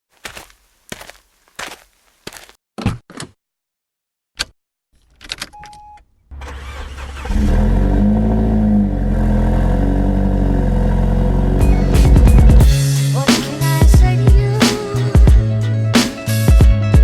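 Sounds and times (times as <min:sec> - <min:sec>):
car engine cranking and idling: 0:06.3 - 0:12.6.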